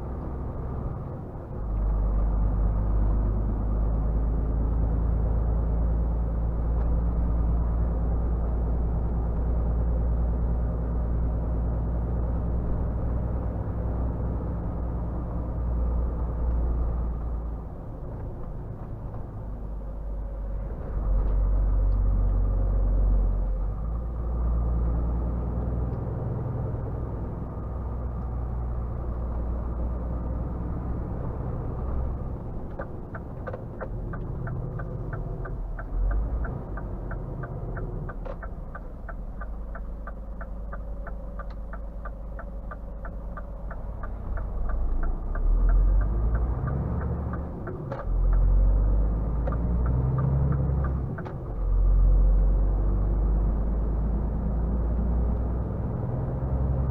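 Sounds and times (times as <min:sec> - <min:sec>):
diesel truck engine rumbling: 0:00.0 - 0:56.9
turn indicator ticking: 0:32.3 - 0:52.7.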